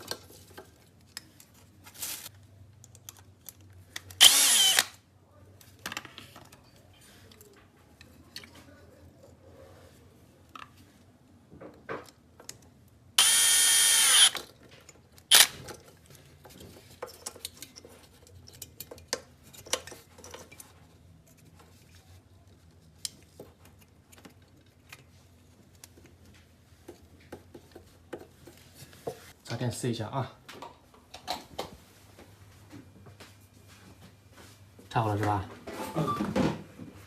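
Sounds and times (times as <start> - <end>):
small clicks and handling noises: 0.0 - 4.2, 11.7 - 13.0, 14.1 - 29.3
electric drill running: 4.2 - 5.0, 13.2 - 14.4, 15.3 - 15.5.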